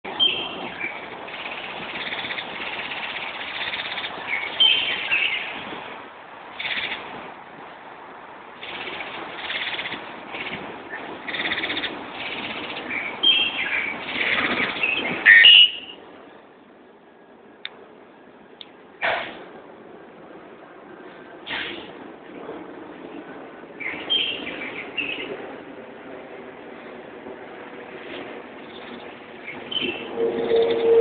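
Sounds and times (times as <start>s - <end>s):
bird chirping and singing: 0.2s - 1.4s, 3.0s - 5.5s, 28.7s - 31.0s.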